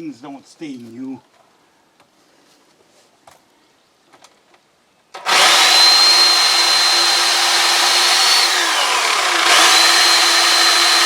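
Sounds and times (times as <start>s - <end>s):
electric chainsaw whining: 5.2s - 11.0s.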